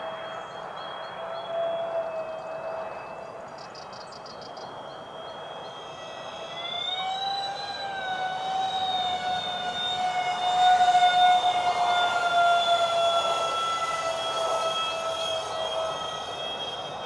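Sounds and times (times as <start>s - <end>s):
model jet fans whining: 4.4s - 17.0s.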